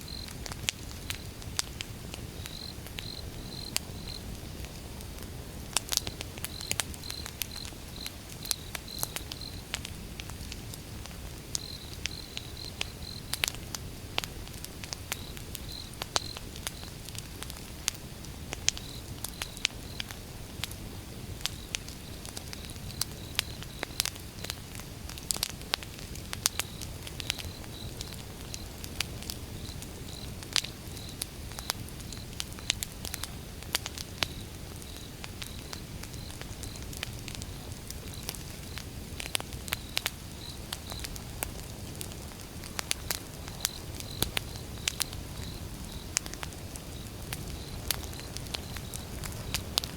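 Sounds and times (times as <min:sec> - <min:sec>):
insect chirping: 0:00.0 - 0:00.3, 0:02.4 - 0:04.4, 0:06.5 - 0:09.6, 0:11.6 - 0:13.4, 0:15.2 - 0:16.9, 0:30.9 - 0:32.7, 0:39.4 - 0:41.2, 0:43.0 - 0:49.7
low fire rumble: 0:00.0 - 0:49.9
wood fire crackling: 0:00.0 - 0:49.9.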